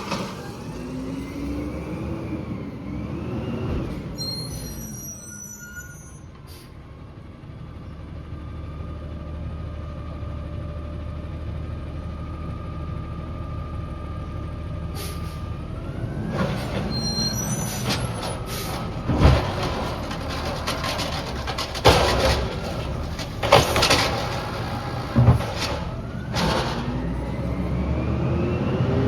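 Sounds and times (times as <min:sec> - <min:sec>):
diesel truck engine running: 0:06.8 - 0:29.0.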